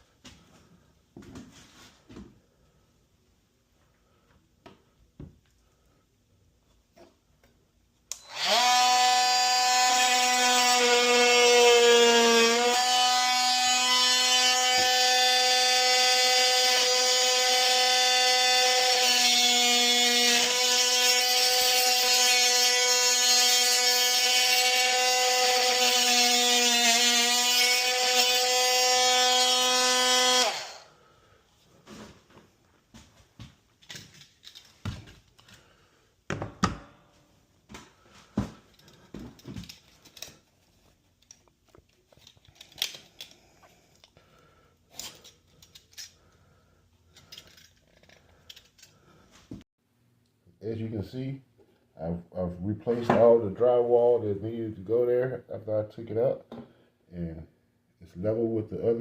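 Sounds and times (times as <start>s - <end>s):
power tool motor whining: 8.2s - 30.9s.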